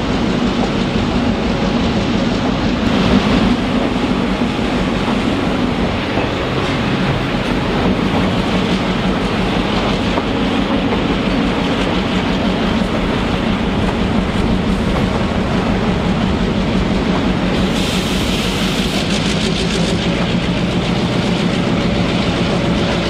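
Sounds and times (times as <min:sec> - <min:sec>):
train wheels rumbling on track: 0:00.0 - 0:23.0.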